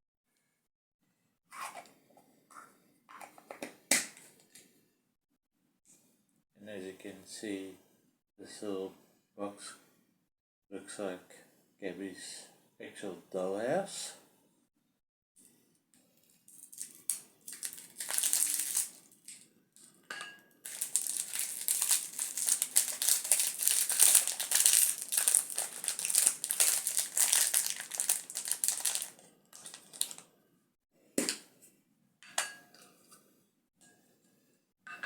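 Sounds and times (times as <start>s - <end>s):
packaging crinkling: 16.5s - 19.4s, 20.6s - 30.3s.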